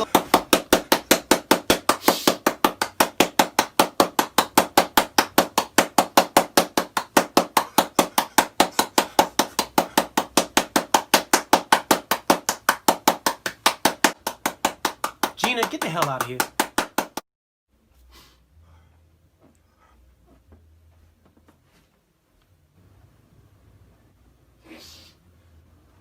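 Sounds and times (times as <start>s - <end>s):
rapid sharp knocking: 0.0s - 17.2s.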